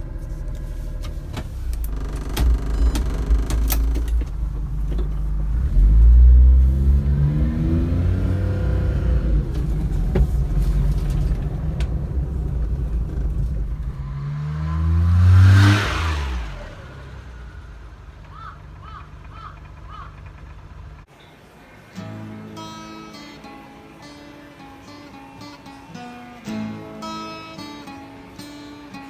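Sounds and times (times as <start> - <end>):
van engine revving: 0.0 - 21.1
clicks: 0.2 - 5.6.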